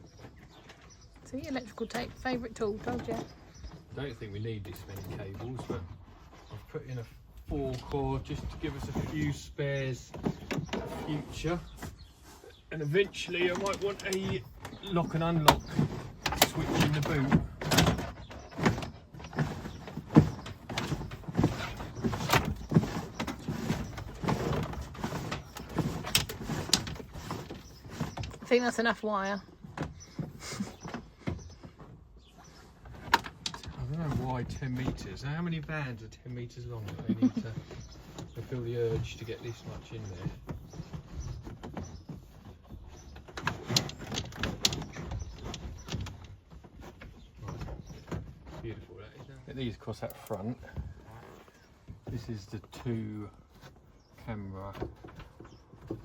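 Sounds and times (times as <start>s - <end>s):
cable rubbing and scraping: 0.0s - 29.3s, 31.7s - 56.0s.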